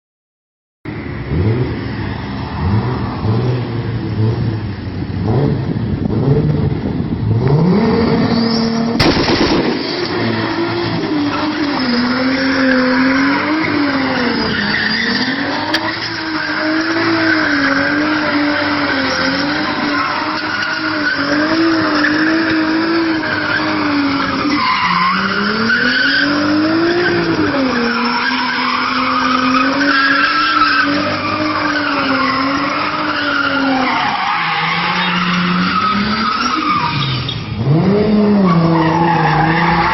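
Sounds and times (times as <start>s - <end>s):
turbocharged car engine revving: 2.6s - 39.9s
sharp crack: 9.0s - 10.7s.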